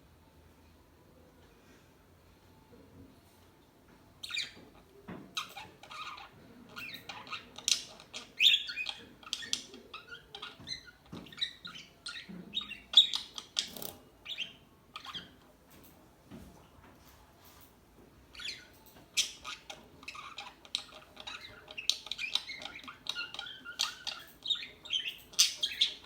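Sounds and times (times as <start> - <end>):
parakeets chirping and squawking: 4.2 - 4.7, 5.3 - 15.4, 18.3 - 26.0.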